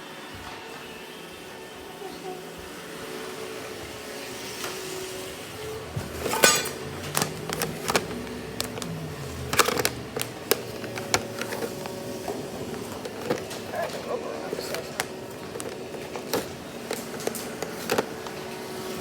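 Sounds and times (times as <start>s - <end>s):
robot vacuum humming: 0.0s - 19.0s.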